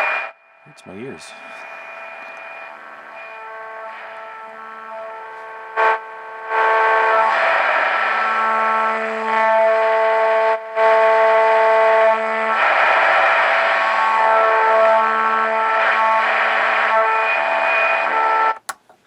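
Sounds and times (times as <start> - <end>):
distorted radio speaker tones: 0.0 - 8.9.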